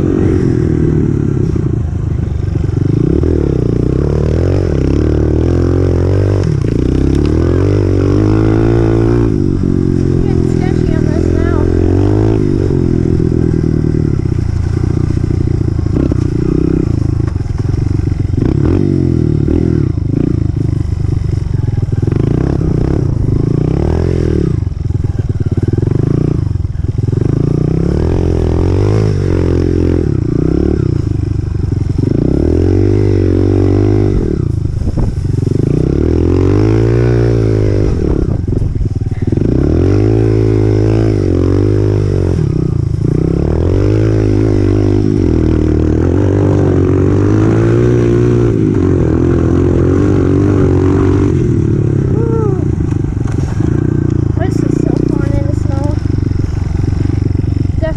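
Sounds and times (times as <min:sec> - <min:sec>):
dirt bike engine revving: 0:00.0 - 0:57.9.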